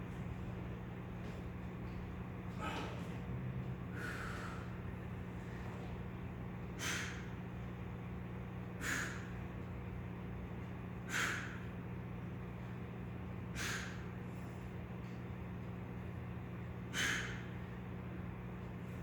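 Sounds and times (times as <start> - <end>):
steady low hum: 0.0 - 19.0
man breathing heavily: 2.5 - 3.2, 3.8 - 7.7, 8.6 - 9.7, 10.9 - 12.8, 13.4 - 14.8, 16.8 - 17.9.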